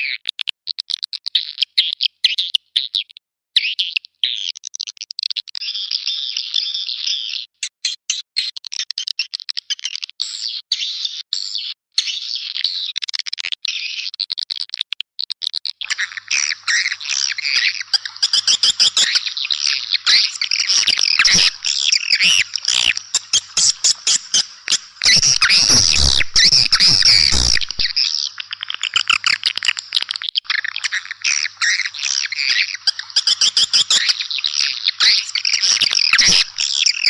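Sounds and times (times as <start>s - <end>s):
swiftlets chirping: 20.1s - 29.1s.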